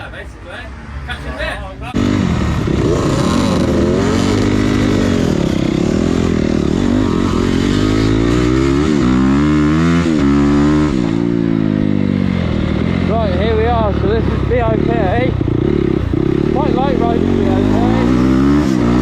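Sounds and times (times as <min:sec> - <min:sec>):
dirt bike engine revving: 0:01.8 - 0:19.0.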